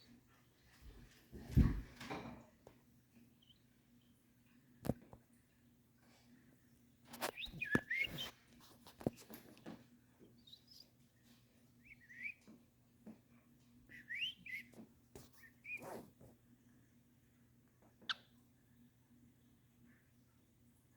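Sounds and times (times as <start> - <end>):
bird whistling: 7.2 - 8.3, 11.8 - 12.4, 13.9 - 14.8, 15.4 - 16.0.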